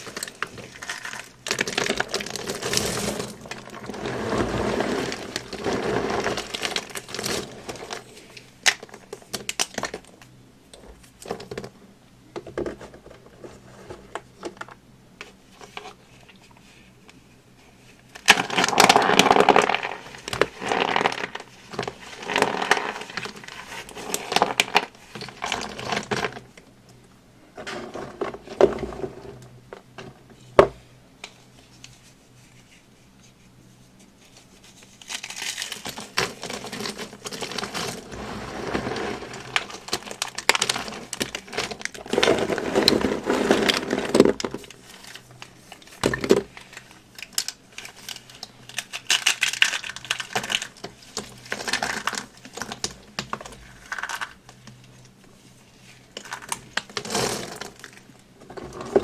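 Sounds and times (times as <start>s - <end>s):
dry soap crunching: 0.0s - 10.0s, 18.2s - 26.4s, 34.6s - 54.7s.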